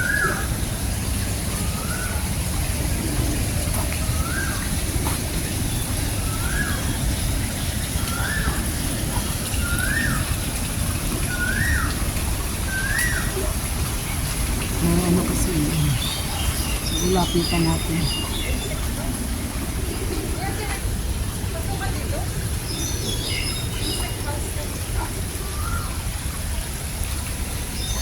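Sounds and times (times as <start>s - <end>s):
bird calling: 14.7s - 18.8s.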